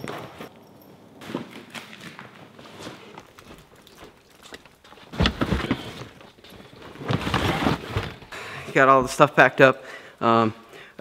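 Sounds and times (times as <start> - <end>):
rustling: 0.0 - 8.4.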